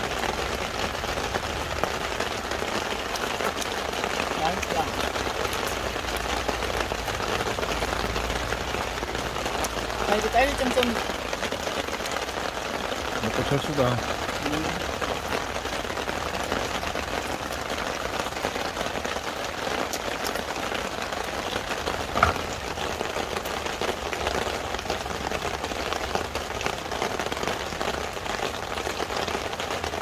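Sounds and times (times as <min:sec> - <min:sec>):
steady rain: 0:00.0 - 0:30.0
sharp knock: 0:22.2 - 0:22.6.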